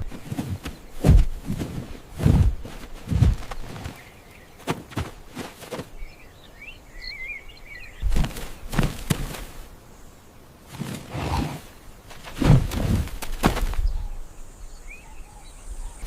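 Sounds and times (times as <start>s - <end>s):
soft thumps and rustles: 0.0s - 6.0s, 8.0s - 9.6s, 12.1s - 13.9s.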